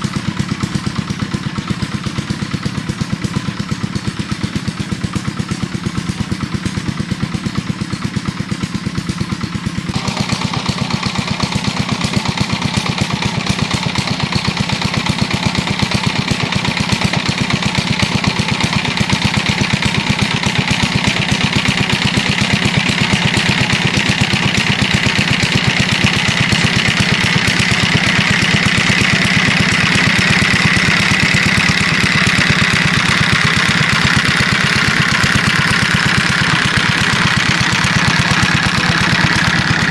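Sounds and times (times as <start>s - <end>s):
small engine running: 0.0s - 39.9s
rushing mechanical noise: 9.9s - 13.2s.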